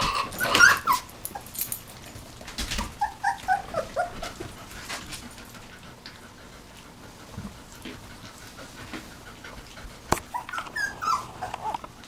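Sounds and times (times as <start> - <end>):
puppy high squeaks: 0.0 - 1.6, 2.8 - 4.2, 10.3 - 11.7
puppies whimpering: 0.0 - 1.8, 2.8 - 5.9, 8.1 - 11.8.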